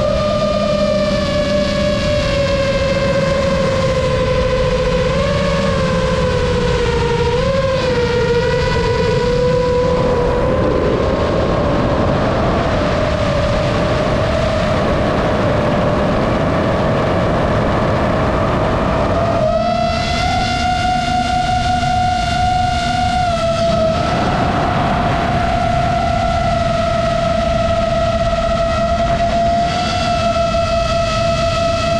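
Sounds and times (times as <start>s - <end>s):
wind rush: 0.0s - 31.9s
model airplane motor whining: 12.6s - 24.6s, 25.4s - 31.9s.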